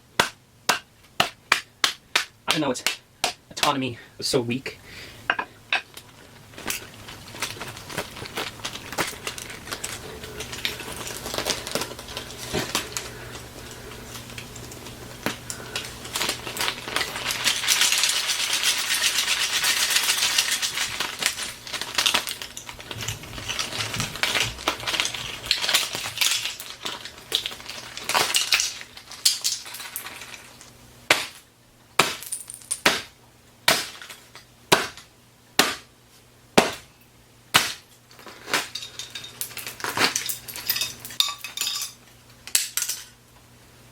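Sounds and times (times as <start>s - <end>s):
plastic toy crunching and rattling: 5.9s - 30.7s, 38.1s - 41.7s.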